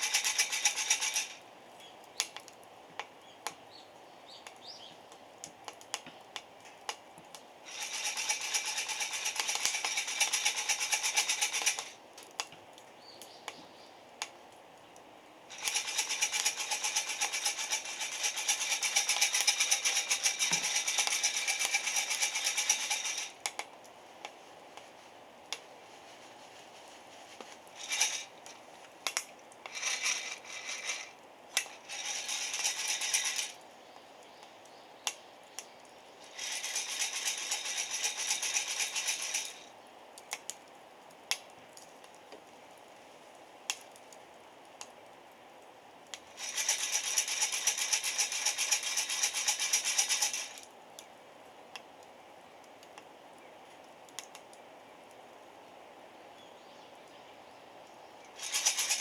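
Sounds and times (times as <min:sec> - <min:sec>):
coffee beans rattling in roaster: 0:00.0 - 0:01.4, 0:07.7 - 0:12.0, 0:15.5 - 0:23.4, 0:26.0 - 0:28.5, 0:29.7 - 0:33.6, 0:36.2 - 0:39.7, 0:46.4 - 0:50.6, 0:58.4 - 0:59.0.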